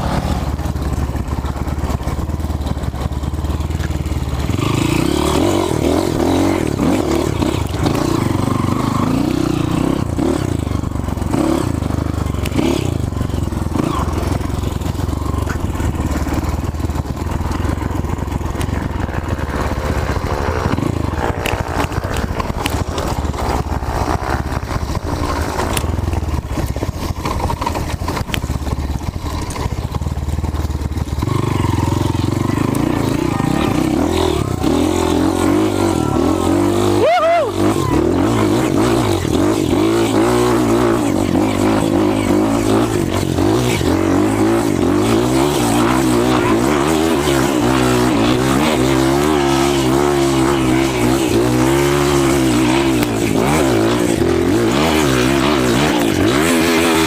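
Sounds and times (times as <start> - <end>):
off-road motorcycle engine: 0.0 - 57.0
clicks and knocks over rough ground: 21.1 - 31.2.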